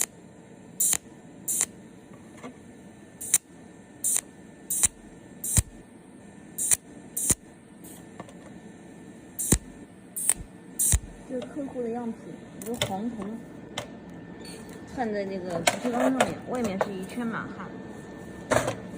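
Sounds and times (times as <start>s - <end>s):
welding machine snapping clicks: 0.8s - 1.8s, 3.2s - 5.8s, 6.6s - 8.4s, 9.4s - 11.5s, 12.6s - 13.3s.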